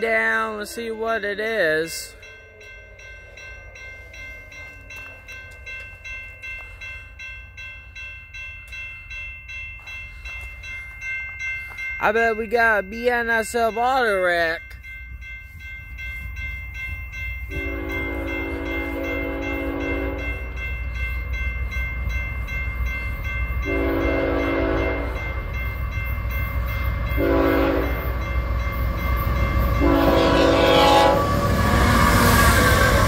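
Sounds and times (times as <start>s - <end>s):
crossing bell ringing: 0.0s - 33.0s
train rumble: 0.0s - 33.0s
locomotive horn: 17.5s - 20.4s, 23.6s - 25.2s, 27.2s - 28.1s, 29.8s - 33.0s.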